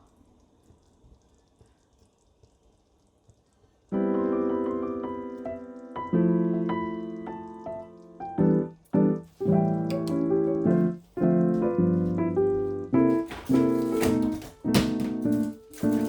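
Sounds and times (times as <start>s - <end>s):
piano chords: 4.0s - 16.0s.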